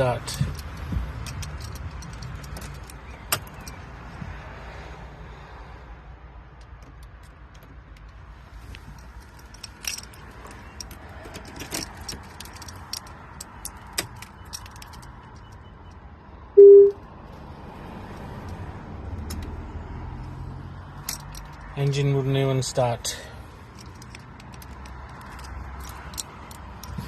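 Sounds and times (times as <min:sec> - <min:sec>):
keys jangling: 0:00.2 - 0:03.8, 0:08.9 - 0:15.5, 0:23.7 - 0:27.0
electronic beep: 0:16.6 - 0:17.0.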